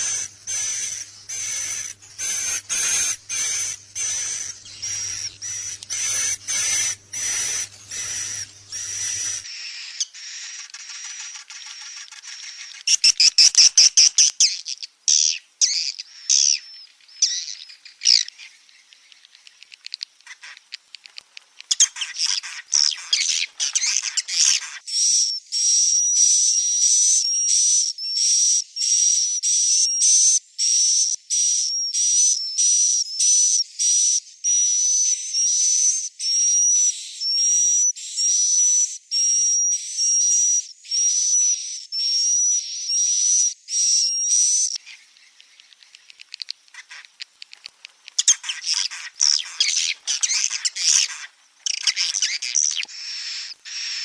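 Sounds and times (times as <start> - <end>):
bird chicks twittering: 0.0 - 24.8, 43.7 - 54.0
repeated high whistled bird calls: 0.0 - 54.0.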